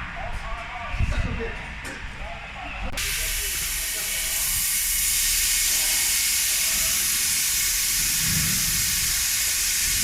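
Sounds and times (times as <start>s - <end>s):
plasma torch hissing: 3.0s - 10.0s.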